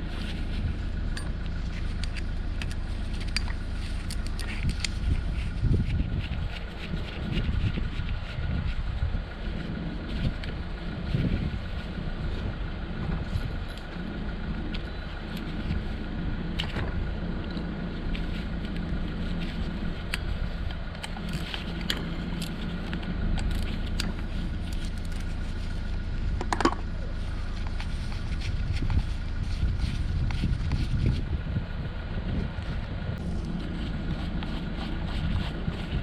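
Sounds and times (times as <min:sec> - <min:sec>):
low wind rumble: 0:00.0 - 0:36.0
tools and metal parts clinking: 0:01.1 - 0:01.4, 0:26.4 - 0:26.9.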